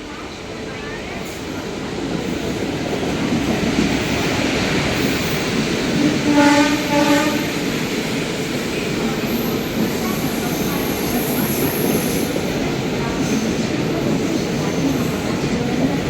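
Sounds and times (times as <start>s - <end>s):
train wheels rumbling on rail: 0.0s - 16.0s
train horn blasts: 6.1s - 7.7s.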